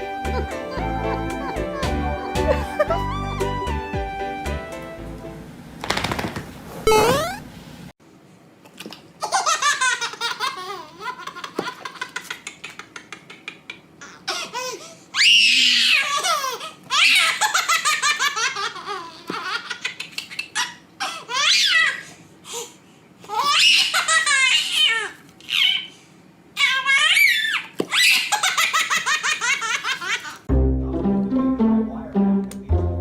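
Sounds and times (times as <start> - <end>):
baby laughing and squealing: 9.2 - 22.1, 23.3 - 25.9, 26.6 - 30.4.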